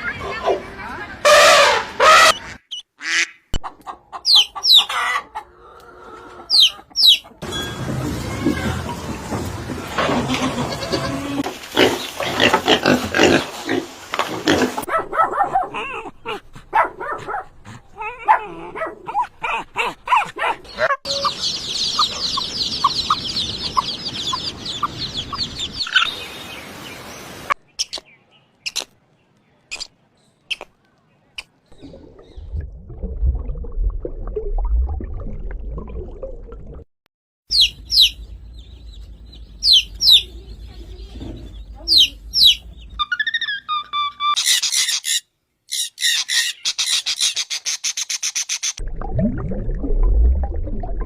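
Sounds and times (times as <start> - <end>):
animal calls and grunts: 9.9 - 25.0
low rumbling: 31.7 - 36.8, 48.8 - 51.0
rapid high twittering chirps: 37.5 - 38.4, 39.5 - 40.4.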